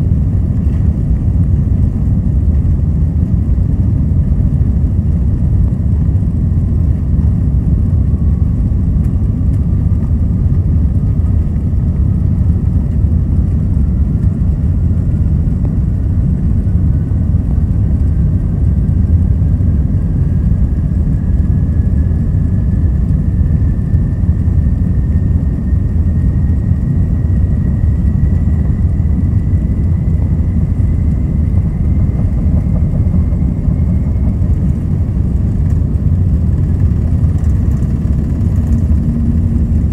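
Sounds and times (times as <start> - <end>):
jet engines rumbling in cabin: 0.0 - 39.9
thin rising engine whine: 24.7 - 39.9.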